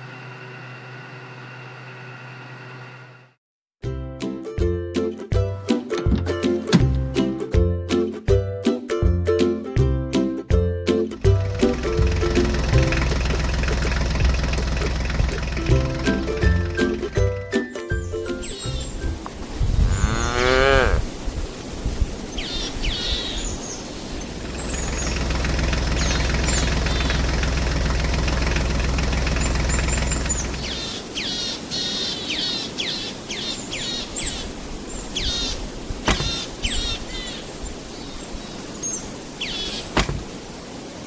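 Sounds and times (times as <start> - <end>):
low engine hum: 0.0 - 3.4, 11.1 - 17.4, 24.2 - 31.0
birds chirping: 18.0 - 19.3, 22.3 - 40.4
sharp knock: 40.0 - 40.2.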